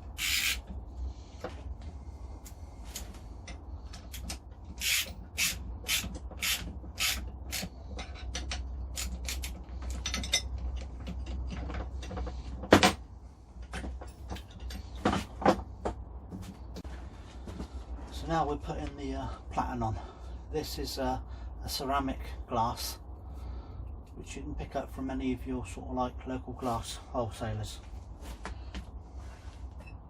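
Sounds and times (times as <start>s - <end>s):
hand tool rasping clicks: 0.0s - 0.7s, 4.0s - 11.4s
steady low hum: 0.0s - 30.0s.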